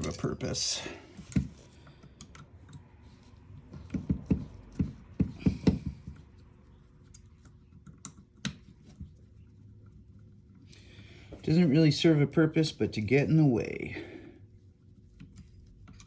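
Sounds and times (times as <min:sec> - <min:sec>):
small parts clicking and tapping: 0:01.2 - 0:02.9, 0:07.0 - 0:09.0.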